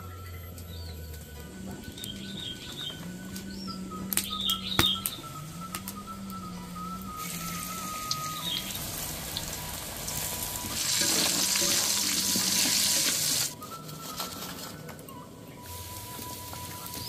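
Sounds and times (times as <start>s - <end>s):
eggplant sizzling in hot oil: 7.2s - 13.5s.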